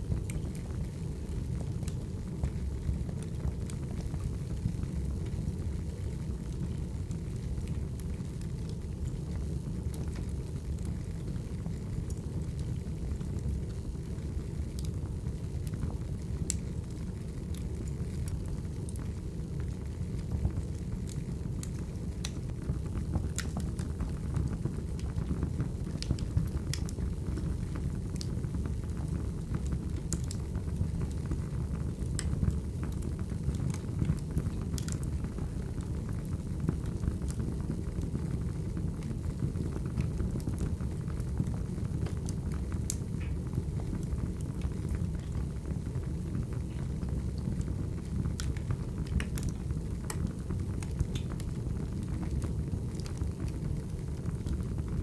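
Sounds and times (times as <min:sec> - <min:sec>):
fire crackling and rumbling: 0:00.0 - 0:55.0
sharp pops from fire: 0:26.0 - 0:27.5, 0:48.3 - 0:51.5.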